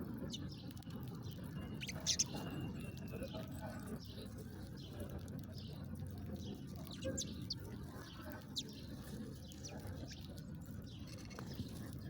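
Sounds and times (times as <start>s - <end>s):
songbirds chirping: 0.2s - 12.0s.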